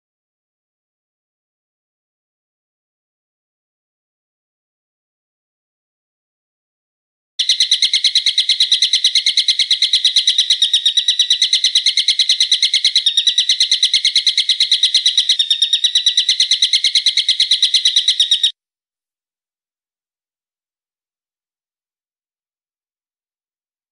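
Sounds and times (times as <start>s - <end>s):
bird trilling: 7.4s - 18.5s.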